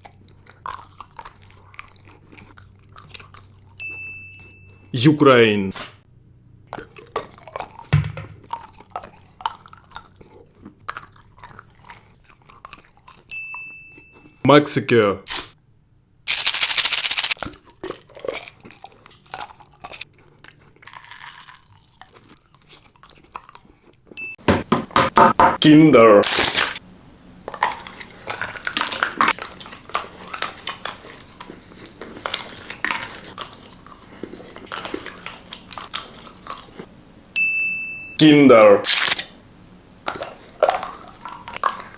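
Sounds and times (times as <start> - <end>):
person chewing chocolate: 0.0 - 4.9, 6.6 - 13.3, 16.3 - 24.6, 27.4 - 37.3, 38.8 - 41.9.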